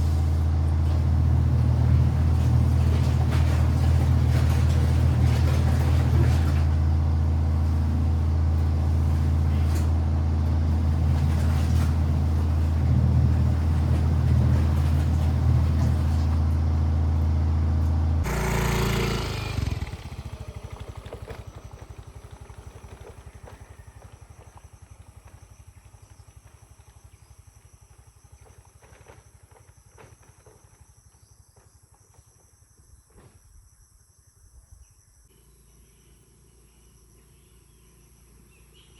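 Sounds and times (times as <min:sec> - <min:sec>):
low motor hum: 0:00.0 - 0:28.9.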